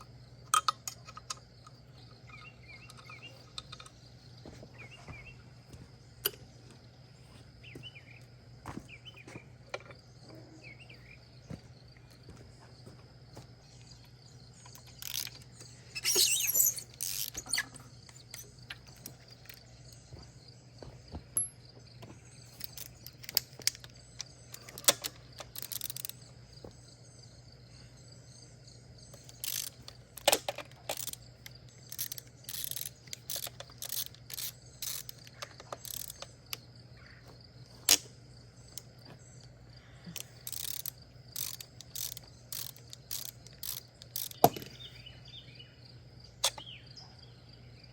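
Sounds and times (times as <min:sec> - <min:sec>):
steady low hum: 0:00.0 - 0:47.9
metal tools clinking: 0:00.5 - 0:04.0.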